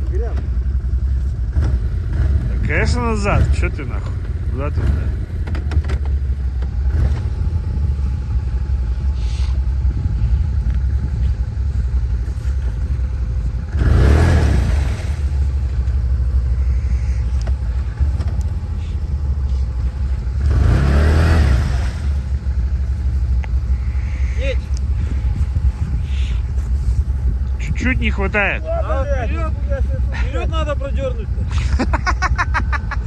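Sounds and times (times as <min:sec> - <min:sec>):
quad bike engine revving: 0:00.0 - 0:11.4, 0:12.1 - 0:19.0, 0:19.6 - 0:23.0.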